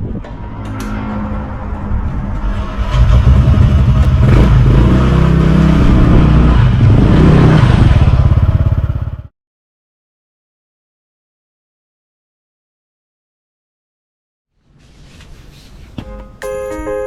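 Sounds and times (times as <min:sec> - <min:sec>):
motor scooter engine running: 0:07.6 - 0:09.3.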